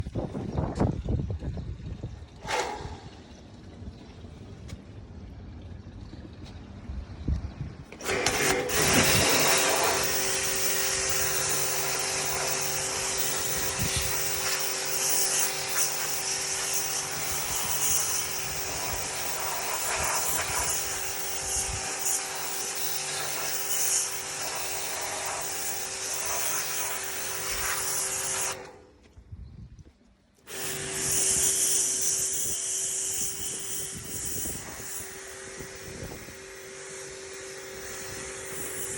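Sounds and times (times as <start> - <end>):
small electric machine running: 8.0 - 28.8, 30.5 - 38.9.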